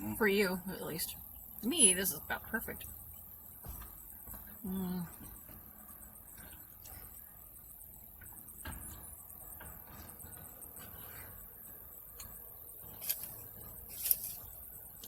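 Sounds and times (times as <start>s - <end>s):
chewing food: 2.8s - 7.6s.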